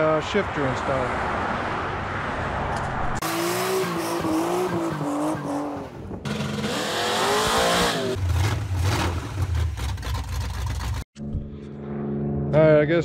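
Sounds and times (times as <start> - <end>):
race car engines revving: 3.1 - 9.8.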